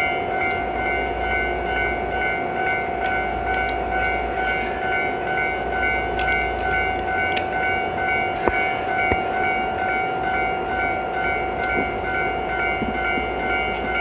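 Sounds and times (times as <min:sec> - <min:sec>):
sharp clicks: 0:06.2 - 0:07.5.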